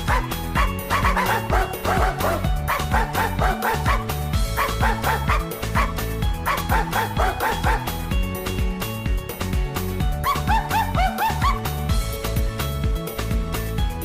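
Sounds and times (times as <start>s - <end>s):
dog yipping: 0.0s - 7.9s, 10.2s - 11.7s
background music with beat: 0.0s - 14.0s.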